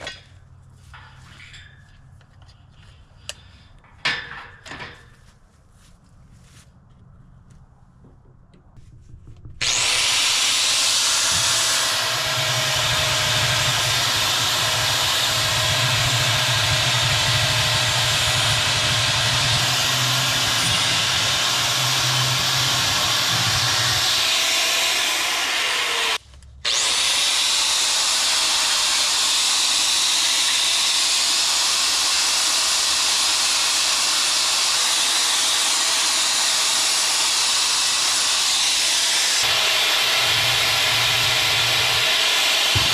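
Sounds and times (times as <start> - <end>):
angle grinder grinding steel: 9.6 - 42.9.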